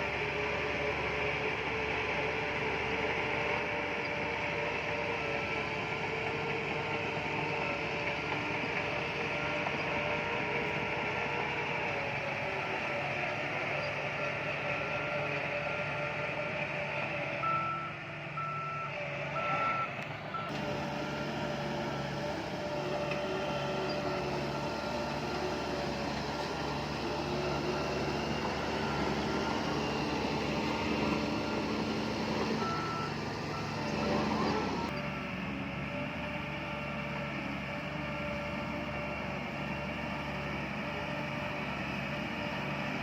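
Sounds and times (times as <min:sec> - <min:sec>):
heavy diesel machinery running: 0:00.0 - 0:43.0
reversing alarm beeping: 0:17.4 - 0:20.6, 0:23.6 - 0:35.2.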